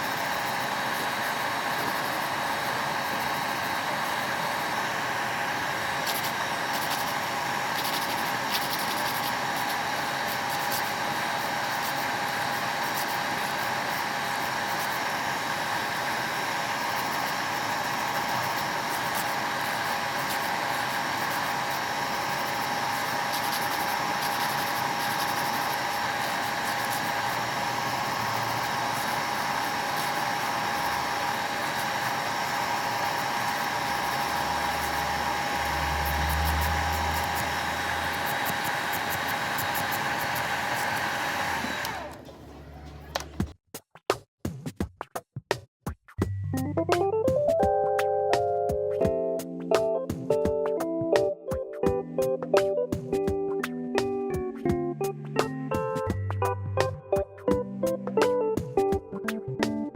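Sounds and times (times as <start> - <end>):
electric nail drill whining: 0.0 - 43.4
drill bit grinding on nail: 0.0 - 43.5.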